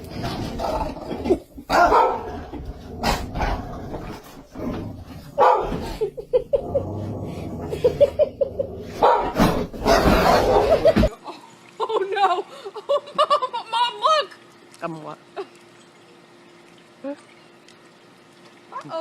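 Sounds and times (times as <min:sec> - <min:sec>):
dog barking: 0:01.7 - 0:02.3, 0:05.4 - 0:05.8, 0:09.0 - 0:09.4.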